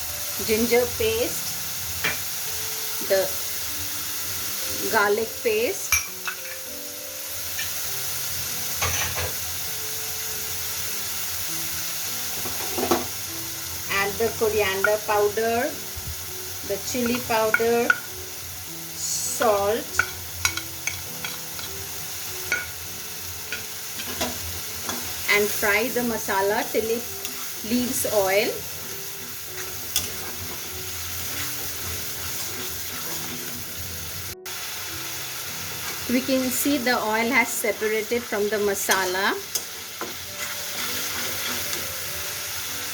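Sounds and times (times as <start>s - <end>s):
paste sizzling in hot oil: 0.0s - 42.9s
stirring scrape: 29.6s - 33.6s, 40.0s - 41.8s.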